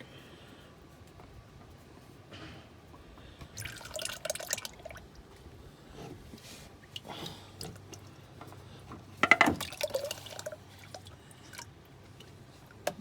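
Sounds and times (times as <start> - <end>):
engine oil dripping: 3.2 - 5.6, 6.8 - 13.0.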